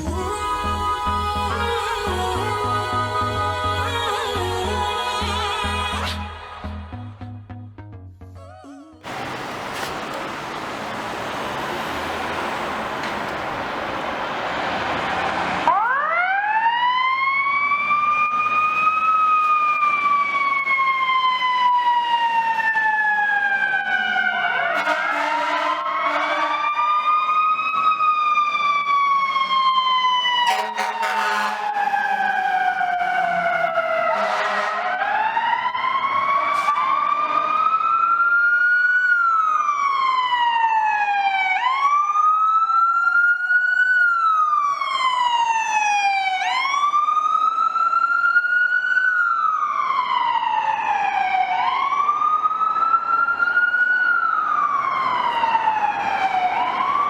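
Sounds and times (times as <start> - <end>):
fire truck sirens wailing: 0.0 - 6.7, 8.4 - 57.0
horn blast: 24.7 - 26.7, 30.4 - 31.9, 34.0 - 35.0.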